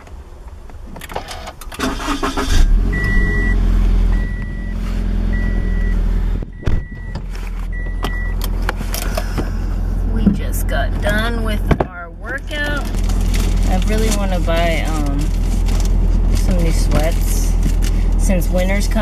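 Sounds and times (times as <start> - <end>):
car engine starting and idling: 0.0 - 19.0
dashboard warning chime beeping: 2.9 - 8.6.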